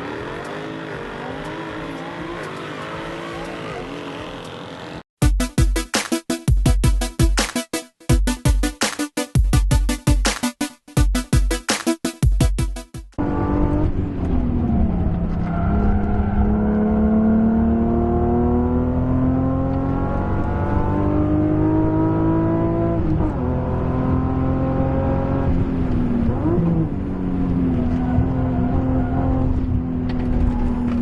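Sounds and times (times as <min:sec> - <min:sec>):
car engine accelerating: 0:00.0 - 0:05.0, 0:13.2 - 0:31.0
electronic music: 0:05.2 - 0:13.2.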